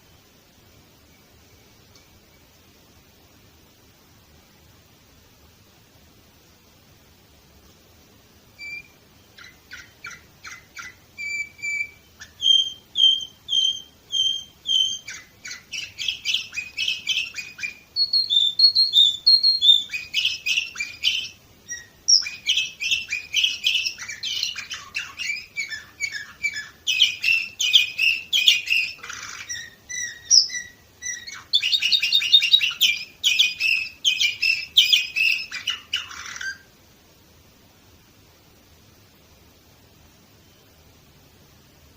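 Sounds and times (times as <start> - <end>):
canary singing trilled phrases: 8.5 - 36.8.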